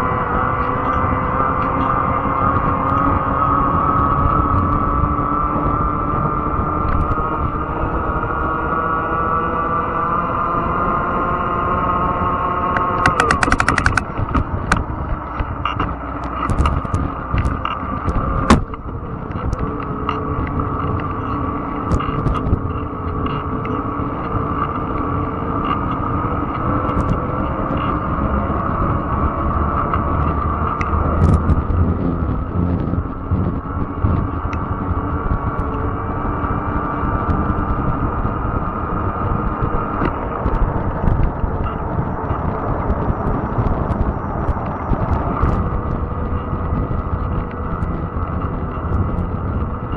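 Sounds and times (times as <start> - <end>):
rapid clicks: 12.8 - 14.0
ticks and knocks: 12.8 - 14.0.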